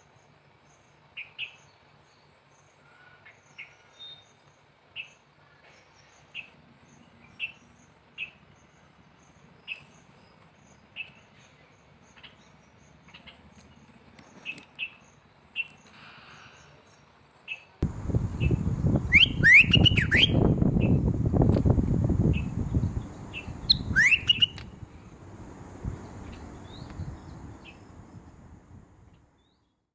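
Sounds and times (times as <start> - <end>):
bird chirping: 0.7 - 21.1, 22.2 - 24.8, 25.8 - 28.3
loud low rumbling noise: 17.8 - 24.0, 24.6 - 29.2.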